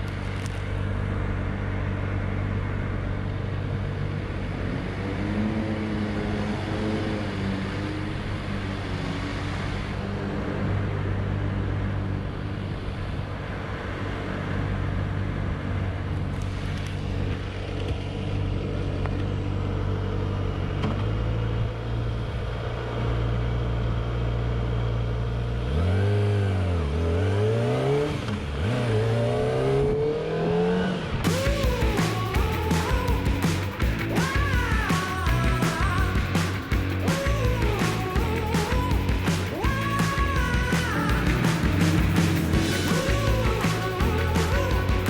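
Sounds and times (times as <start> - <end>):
motorcycle engine idling and revving: 0.0 - 45.0
music with a beat: 31.3 - 45.0.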